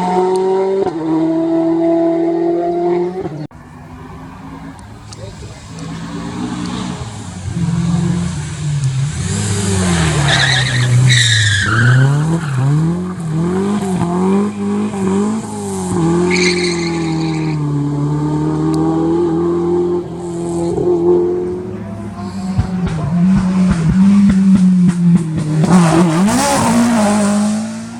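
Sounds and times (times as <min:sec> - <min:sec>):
rally car engine revving: 0:04.1 - 0:27.9
tyres squealing: 0:05.5 - 0:12.8.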